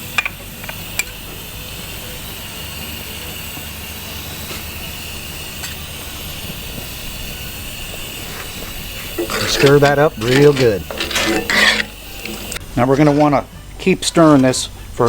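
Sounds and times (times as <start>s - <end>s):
food sizzling in skillet: 0.0s - 13.2s.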